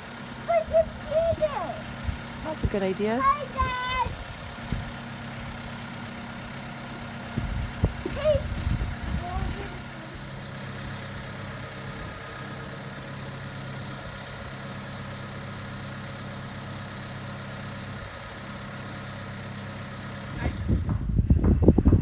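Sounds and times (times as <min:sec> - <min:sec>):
crane engine idling: 0:00.0 - 0:21.9
gusty low rumbling: 0:02.0 - 0:05.0, 0:07.2 - 0:12.5, 0:20.4 - 0:22.0.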